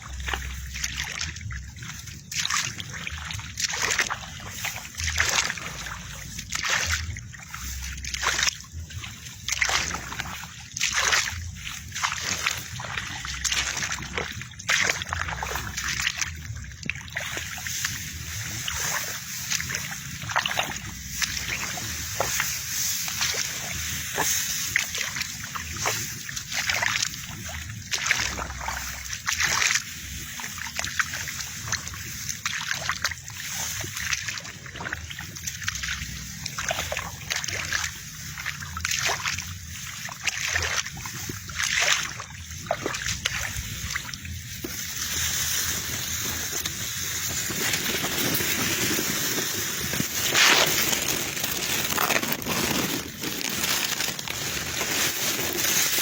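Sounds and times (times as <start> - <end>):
low steady rumble: 0.0 - 56.0
water splashing and sloshing: 0.0 - 56.0.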